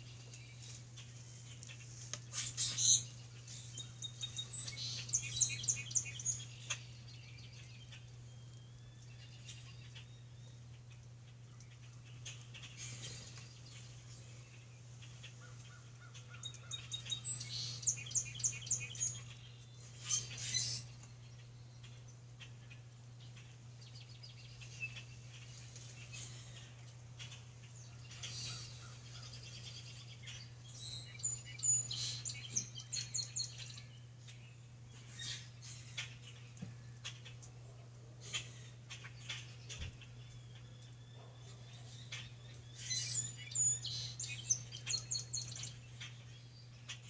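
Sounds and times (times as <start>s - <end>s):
birds singing: 0.0s - 47.0s.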